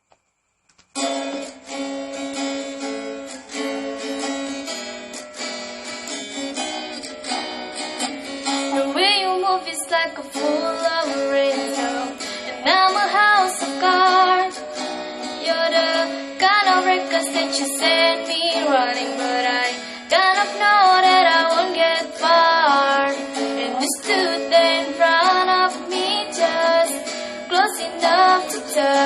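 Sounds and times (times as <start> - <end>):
acoustic guitar strumming chords: 0.9 - 29.0
person singing: 8.4 - 29.0.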